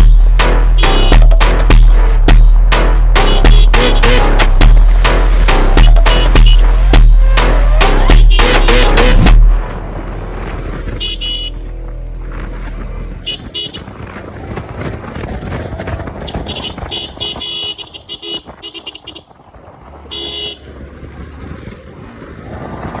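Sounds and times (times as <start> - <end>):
motor traffic: 0.0 - 23.0
vehicle horn honking: 0.7 - 1.4, 3.2 - 4.5, 5.6 - 9.3, 10.9 - 11.8, 13.2 - 14.1, 16.2 - 19.3, 20.1 - 20.8.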